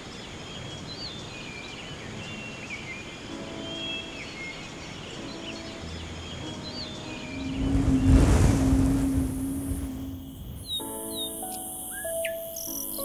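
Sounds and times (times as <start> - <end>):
birds chirping: 0.0 - 13.0
rushing wind-like swell with rumble: 6.5 - 11.2.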